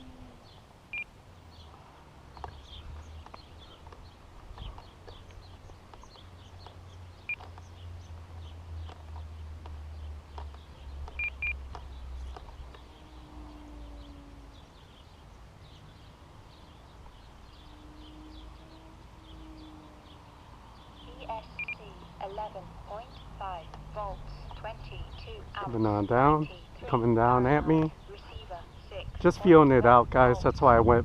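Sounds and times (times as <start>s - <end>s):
birdsong: 0.0s - 31.0s
short electronic beeps: 11.2s - 11.6s, 21.5s - 21.8s
low drone: 11.2s - 28.9s.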